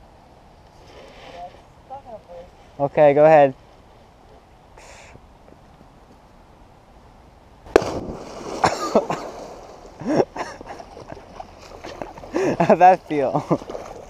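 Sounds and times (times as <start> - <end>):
loud splash into water: 7.7 - 10.0
churning splashing water: 7.7 - 14.0.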